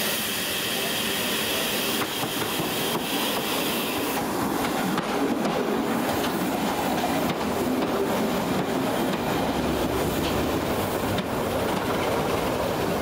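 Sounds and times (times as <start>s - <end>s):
steam hiss: 0.0s - 5.0s
train wheels clicking over rail joints: 1.9s - 13.0s.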